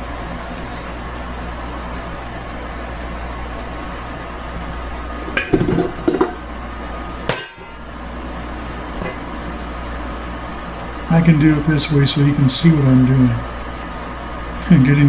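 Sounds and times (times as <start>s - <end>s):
steady low hum: 0.0s - 15.0s
mixer paddle knocking metal bowl: 5.3s - 6.4s, 7.3s - 7.8s.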